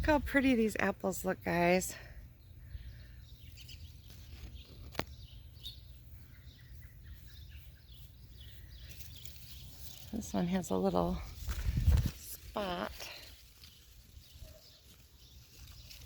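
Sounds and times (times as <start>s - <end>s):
bird chirps: 2.4s - 10.5s.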